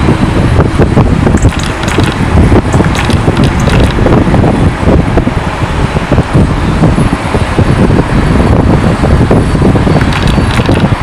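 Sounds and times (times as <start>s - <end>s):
jet engines rumbling: 0.0s - 11.0s
wind buffeting microphone: 0.0s - 11.0s.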